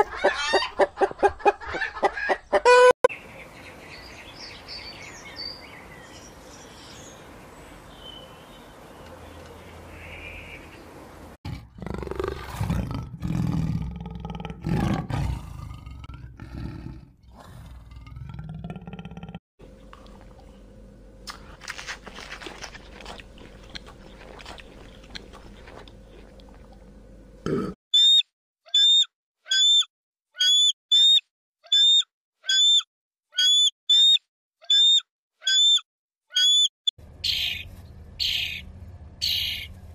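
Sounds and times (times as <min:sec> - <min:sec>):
tiger roaring and growling: 0:11.5 - 0:19.4
faint chewing: 0:19.8 - 0:27.0
eagle calling: 0:28.0 - 0:37.6.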